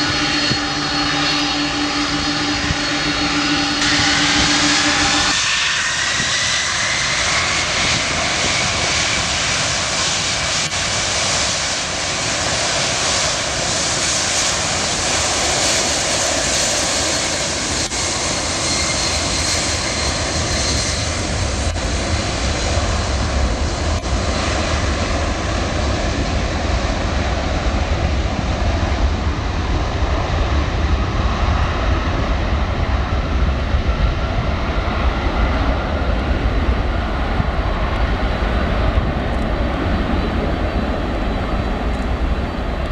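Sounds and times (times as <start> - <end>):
jet engines whining: 0.0 - 42.9
deep low rumble: 20.4 - 42.9.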